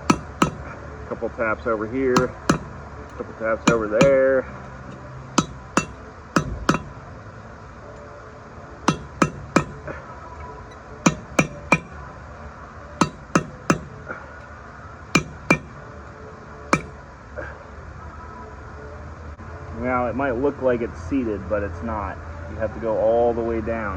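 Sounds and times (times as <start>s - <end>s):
hammer striking steel punch: 0.0s - 0.8s, 2.2s - 4.3s, 4.9s - 7.0s, 8.9s - 9.9s, 10.7s - 12.0s, 13.0s - 14.0s, 15.2s - 15.8s, 16.8s - 17.0s.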